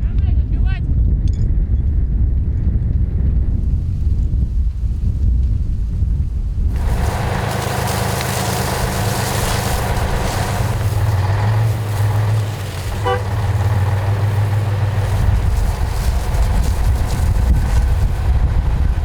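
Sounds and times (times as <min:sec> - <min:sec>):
vehicle engine running: 0:03.6 - 0:19.0
broad hiss: 0:06.7 - 0:19.0
short horn toot: 0:12.9 - 0:14.0.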